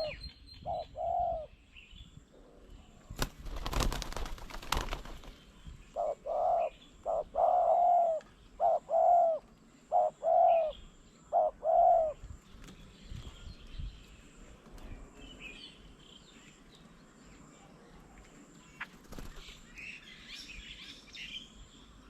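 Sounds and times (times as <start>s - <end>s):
dove cooing: 0.0s - 1.6s, 5.9s - 12.2s
wings flapping: 3.1s - 5.4s, 18.9s - 19.5s.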